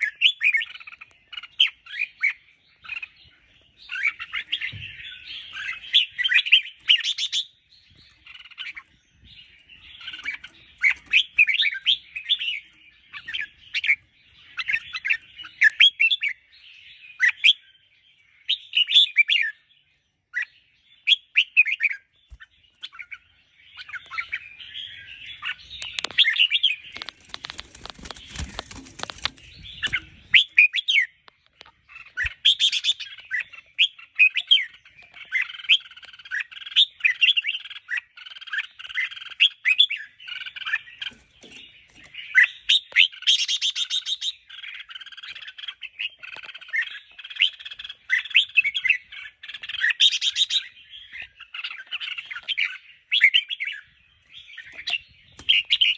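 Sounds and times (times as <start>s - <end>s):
bird warbling song: 0.0s - 55.9s
rustling noise: 26.9s - 30.4s.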